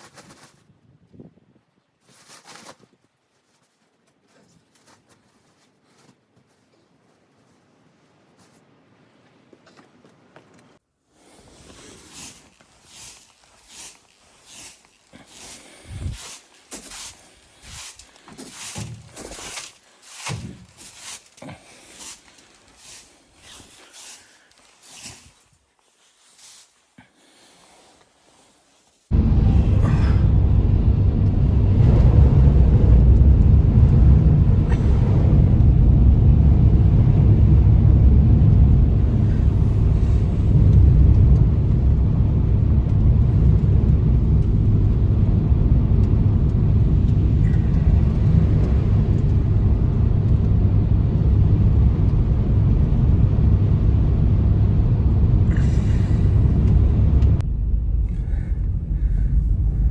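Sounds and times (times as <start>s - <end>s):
loud low rumble: 29.1s - 59.9s.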